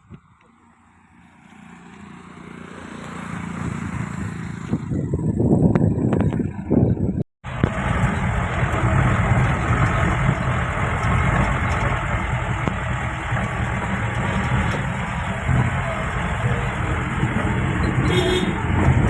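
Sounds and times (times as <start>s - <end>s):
suv engine running: 0.0s - 19.0s.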